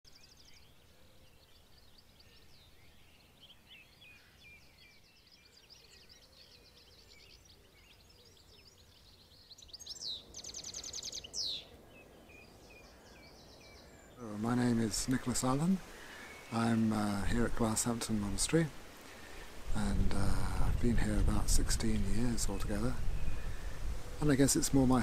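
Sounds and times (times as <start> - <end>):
songbirds singing: 0.1 - 25.0
bird trilling: 9.5 - 14.2.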